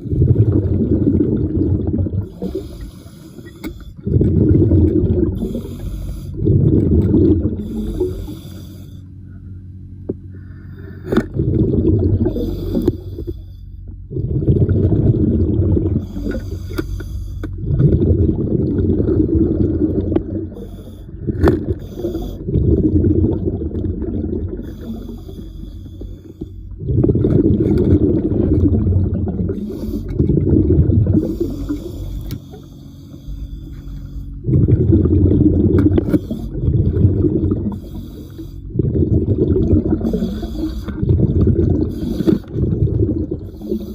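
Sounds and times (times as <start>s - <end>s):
exhaled bubbles rumbling: 0.0s - 43.9s
diver inhaling hiss: 2.3s - 4.0s, 5.4s - 6.4s, 7.6s - 9.1s, 12.2s - 13.7s, 16.0s - 17.5s, 20.6s - 22.5s, 24.6s - 26.7s, 31.2s - 34.4s, 36.0s - 36.6s, 37.7s - 38.7s, 40.0s - 41.1s, 41.8s - 42.6s, 43.5s - 43.9s.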